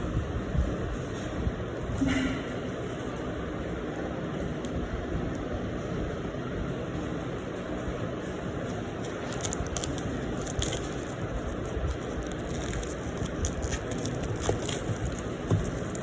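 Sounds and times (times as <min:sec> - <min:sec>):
packaging crackling: 0:08.8 - 0:16.0.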